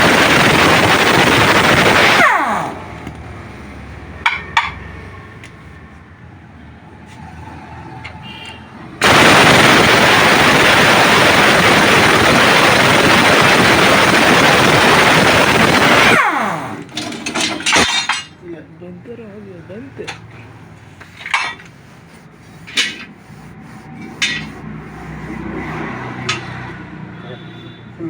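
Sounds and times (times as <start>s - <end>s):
angle grinder grinding metal: 20.0s - 27.1s.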